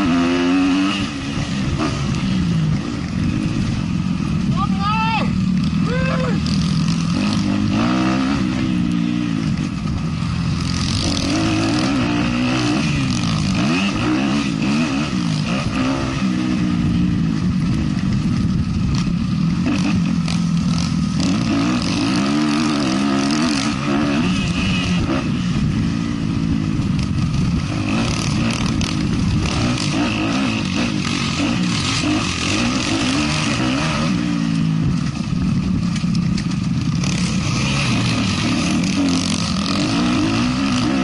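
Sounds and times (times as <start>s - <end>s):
motocross bike engine revving: 0.0s - 41.0s
clatter: 17.4s - 25.0s, 26.7s - 41.0s.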